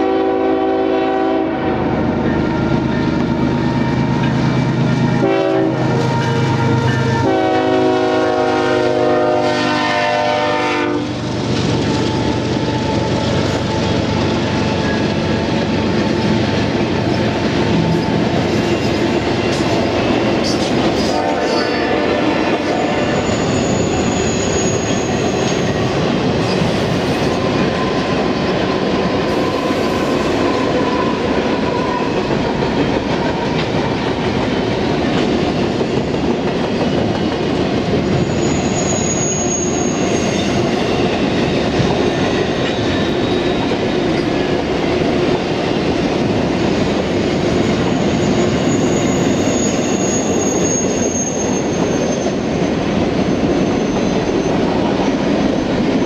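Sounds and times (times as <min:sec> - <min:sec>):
freight train wheels rumbling on rail: 0:00.0 - 0:56.0
high-pitched wheel squeals: 0:22.8 - 0:25.8, 0:38.1 - 0:41.0, 0:47.7 - 0:52.6.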